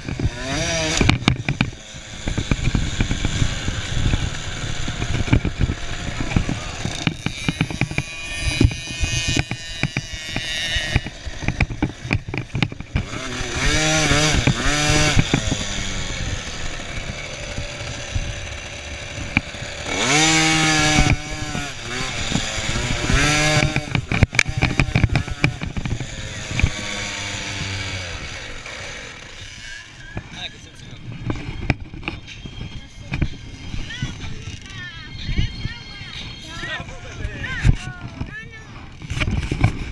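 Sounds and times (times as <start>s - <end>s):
motocross bike engines revving: 0.0s - 39.9s.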